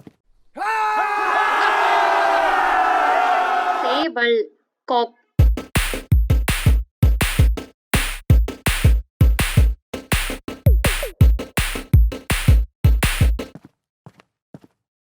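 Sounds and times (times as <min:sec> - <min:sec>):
fast electronic drum beat: 0:05.4 - 0:13.5.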